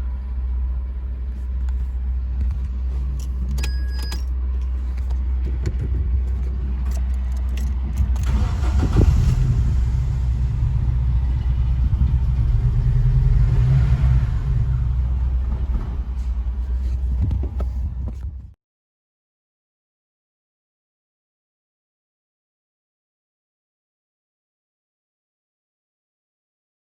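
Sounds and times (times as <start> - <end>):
car engine running: 0.0 - 18.5.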